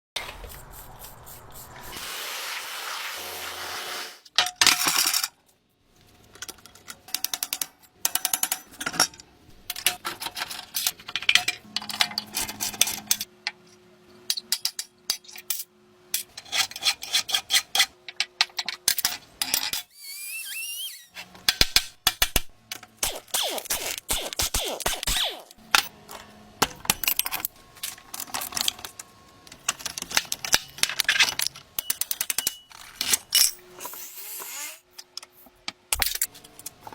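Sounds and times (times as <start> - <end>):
brief rising squeak: 19.9 - 21.2
small metal parts clinking: 26.8 - 34.0.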